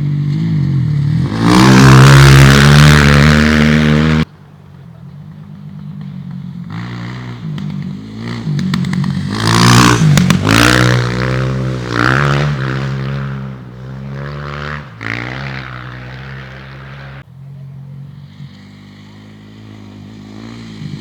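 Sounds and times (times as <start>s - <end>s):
rally car engine revving: 0.0s - 4.3s, 5.5s - 17.2s.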